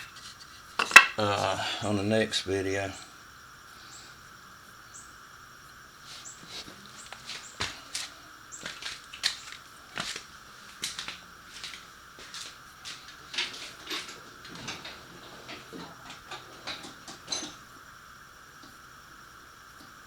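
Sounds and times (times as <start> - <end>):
hand tools clicking on metal: 0.0 - 1.2.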